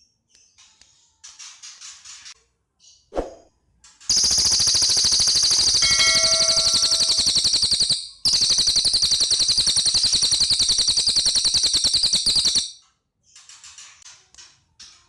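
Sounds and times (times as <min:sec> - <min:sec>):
songbird high rattling trill: 0:04.1 - 0:12.8.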